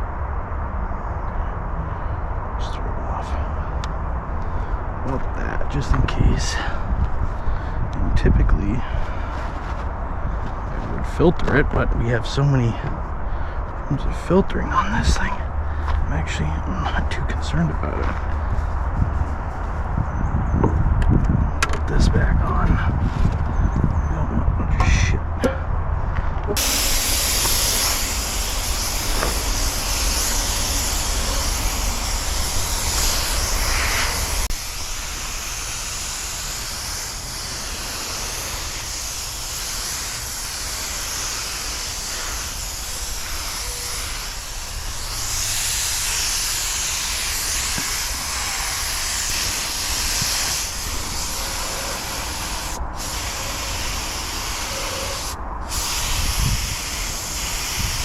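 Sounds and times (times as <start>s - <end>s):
low rumble: 0.0s - 35.1s
paint spray gun hissing: 26.6s - 58.0s.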